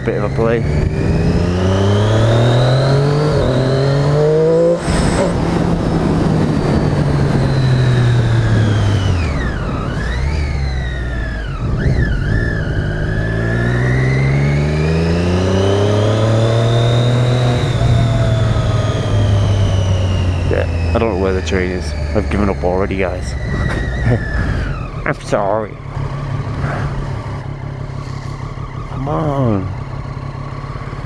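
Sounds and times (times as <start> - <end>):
motorcycle engine accelerating: 0.0 - 31.0
wind and road noise: 0.0 - 31.0.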